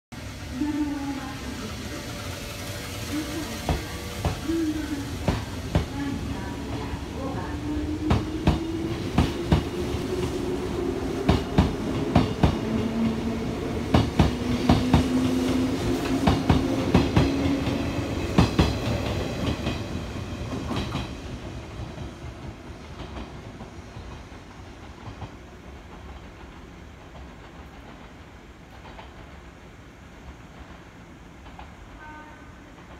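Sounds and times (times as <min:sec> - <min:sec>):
low train hum: 0:00.1 - 0:32.9
train wheels clacking over rail joints: 0:03.4 - 0:06.1, 0:13.8 - 0:21.2.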